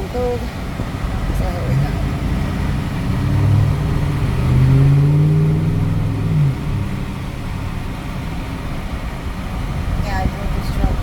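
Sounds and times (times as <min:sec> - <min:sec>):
truck engine accelerating: 0:00.0 - 0:11.0.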